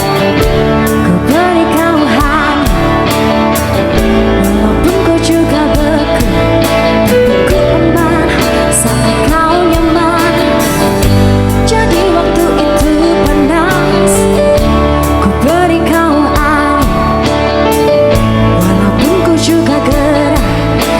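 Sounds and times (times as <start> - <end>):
guitar chords: 0.0 - 20.9
person singing with vibrato: 0.8 - 3.5, 4.1 - 17.4, 18.5 - 20.9
steady drum beat: 8.8 - 15.3.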